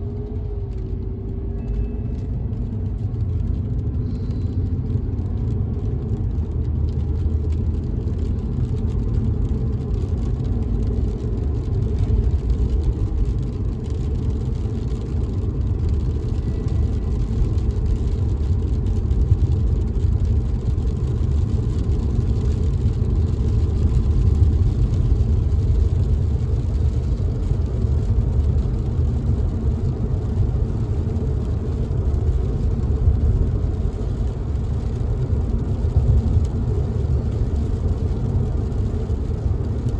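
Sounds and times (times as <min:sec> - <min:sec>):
car driving rumble: 0:00.0 - 0:39.9
rain on car windows: 0:00.0 - 0:39.9.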